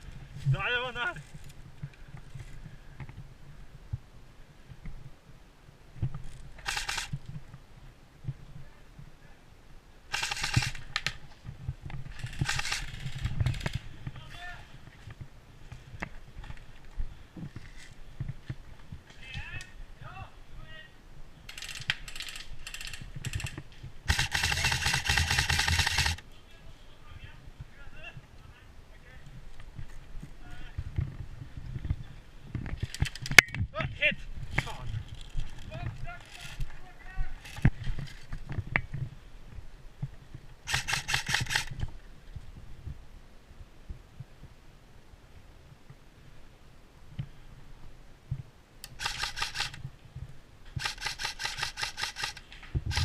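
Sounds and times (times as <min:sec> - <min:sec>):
airsoft gun rapid clicking: 0:06.6 - 0:07.2, 0:10.1 - 0:11.2, 0:12.2 - 0:13.8, 0:21.5 - 0:26.2, 0:40.6 - 0:41.8, 0:48.8 - 0:49.8, 0:50.7 - 0:53.0.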